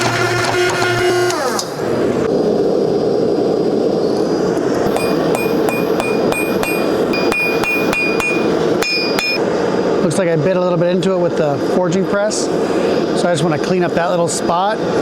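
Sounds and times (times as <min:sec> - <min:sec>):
hammer striking steel on anvil: 0:04.9 - 0:09.4.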